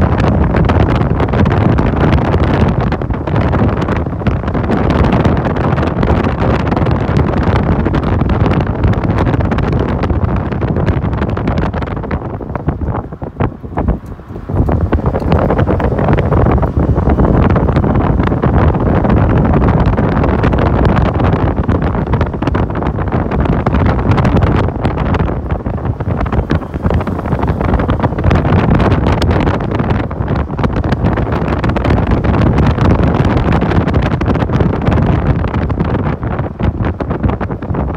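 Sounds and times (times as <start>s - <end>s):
motorcycle running: 0.0s - 36.7s
wind rushing over microphone: 0.0s - 37.9s.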